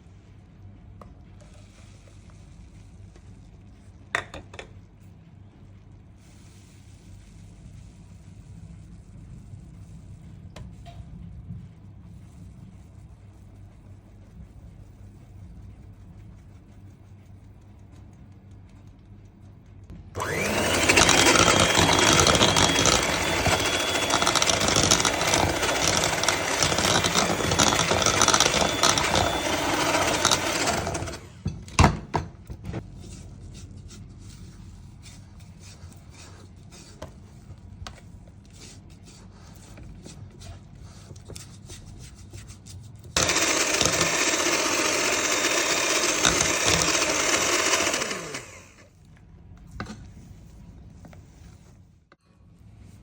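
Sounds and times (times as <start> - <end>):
kitchen appliance motor running: 20.1 - 31.5, 43.2 - 48.9.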